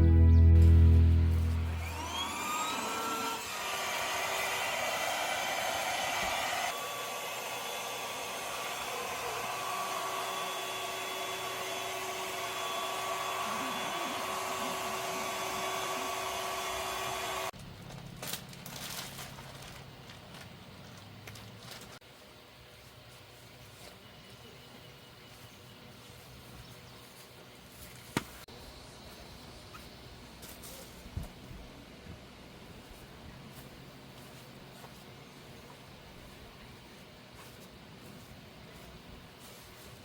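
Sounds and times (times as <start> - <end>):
electric blower motor whining: 0.6 - 17.6.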